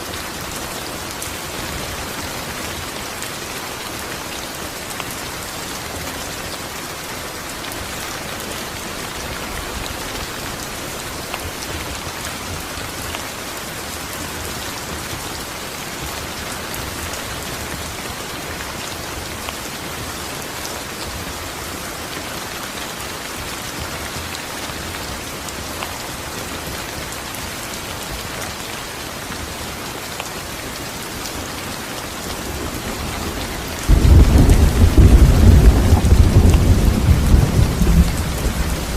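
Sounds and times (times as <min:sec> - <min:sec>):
rain on a hard surface: 0:00.0 - 0:38.9
low rumble of thunder: 0:32.7 - 0:38.9.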